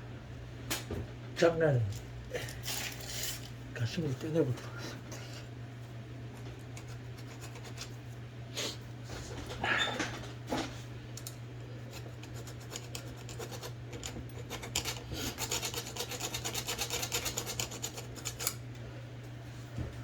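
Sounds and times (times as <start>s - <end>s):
hand file rasping on metal: 12.0s - 18.6s.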